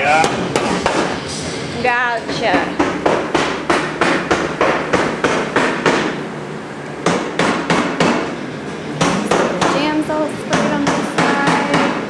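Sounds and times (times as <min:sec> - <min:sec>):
rapid hammer blows: 0:02.3 - 0:06.2.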